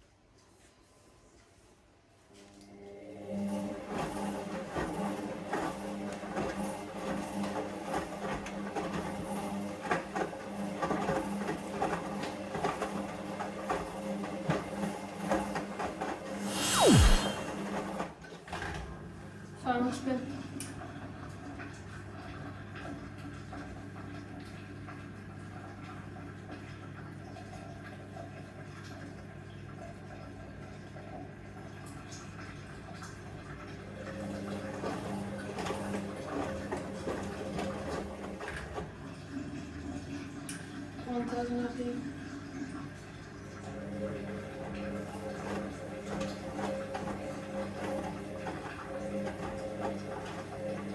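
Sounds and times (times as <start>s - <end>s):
washing machine spinning: 2.8s - 17.6s, 19.1s - 50.9s
motor whine falling in pitch: 16.4s - 17.7s
washing machine motor hum: 30.6s - 50.9s.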